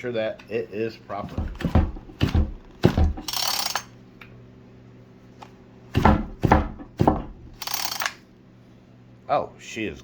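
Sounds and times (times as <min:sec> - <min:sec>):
starter ratcheting clicks: 0:03.2 - 0:03.9, 0:07.6 - 0:08.2.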